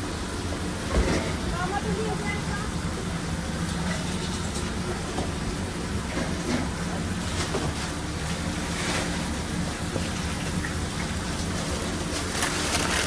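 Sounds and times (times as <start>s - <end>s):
kitchen equipment humming: 0.0s - 13.0s.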